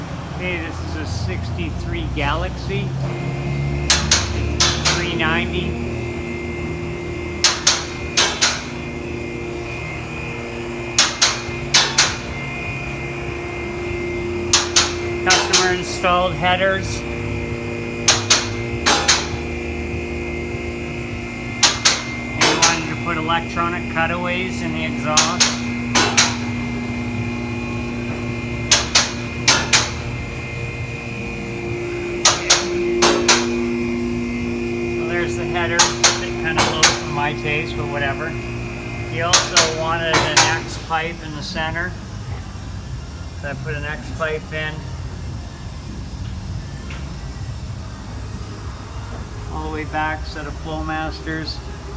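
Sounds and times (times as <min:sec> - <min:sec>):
steady hum: 0:00.0 - 0:51.9
sharp knocks in pairs: 0:03.9 - 0:05.1, 0:18.1 - 0:19.5, 0:25.2 - 0:26.6, 0:28.7 - 0:30.1, 0:32.2 - 0:33.6
sharp knocks: 0:03.9 - 0:05.3, 0:07.4 - 0:08.8, 0:11.0 - 0:12.4, 0:14.5 - 0:15.9, 0:18.0 - 0:19.6, 0:21.5 - 0:23.2, 0:24.9 - 0:27.0, 0:28.0 - 0:30.2, 0:32.2 - 0:33.8, 0:35.1 - 0:37.7, 0:39.2 - 0:40.8.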